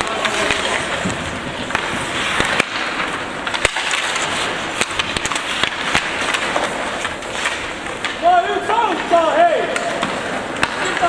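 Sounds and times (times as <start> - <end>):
hockey sticks clacking on puck: 0.0 - 11.0.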